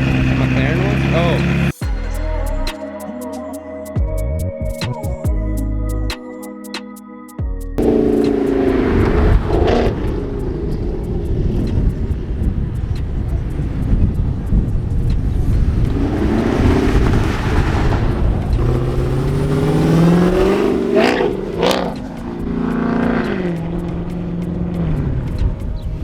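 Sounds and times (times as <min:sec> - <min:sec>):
car engine revving: 0:00.0 - 0:01.8, 0:07.8 - 0:25.6.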